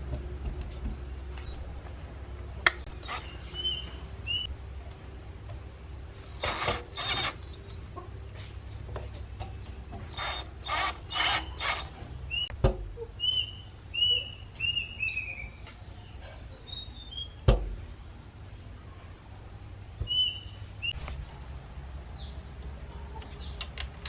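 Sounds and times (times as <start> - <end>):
birds calling harshly: 2.7 - 4.5, 8.7 - 17.4, 20.0 - 21.1.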